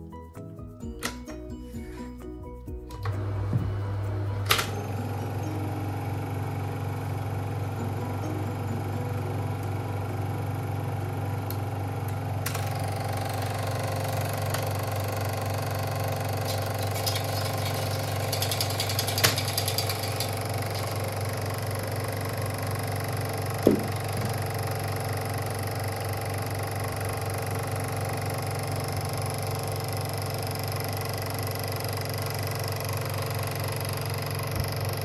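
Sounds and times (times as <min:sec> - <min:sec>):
projector clicks: 0:01.0 - 0:01.3, 0:04.2 - 0:05.5, 0:11.4 - 0:22.4
film projector motor hum: 0:02.9 - 0:35.0.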